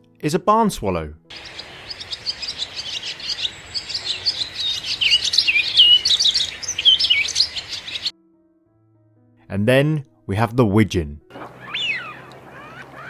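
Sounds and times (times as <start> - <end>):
bird twittering: 1.3 - 8.1, 11.3 - 13.0.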